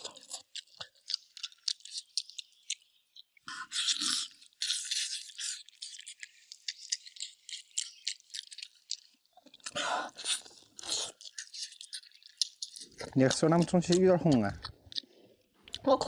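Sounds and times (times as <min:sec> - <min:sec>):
chewing mouth sounds: 0:00.0 - 0:16.0.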